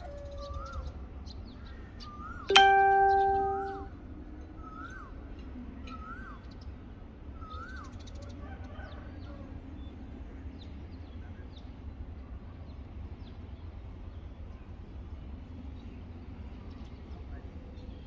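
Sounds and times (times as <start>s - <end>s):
faint high bird chirps: 2.0s - 3.9s.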